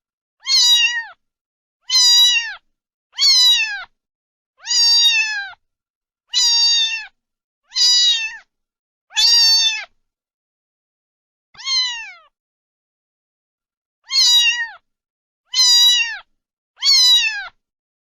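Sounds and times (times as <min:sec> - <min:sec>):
cat meowing: 0:00.4 - 0:01.2, 0:01.8 - 0:04.0, 0:04.6 - 0:05.6, 0:06.3 - 0:08.5, 0:09.1 - 0:10.0, 0:11.6 - 0:12.4, 0:14.0 - 0:14.8, 0:15.5 - 0:17.6.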